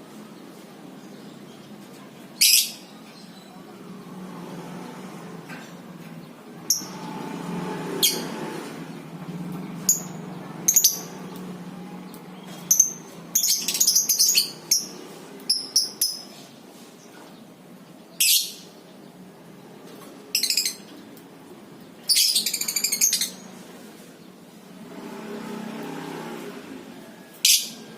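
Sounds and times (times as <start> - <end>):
lovebirds shrill calls: 8.0 - 8.4, 9.8 - 11.2, 12.4 - 16.5, 18.2 - 18.7, 20.3 - 20.9, 22.0 - 23.5
lovebirds rapid chattering: 12.1 - 17.1.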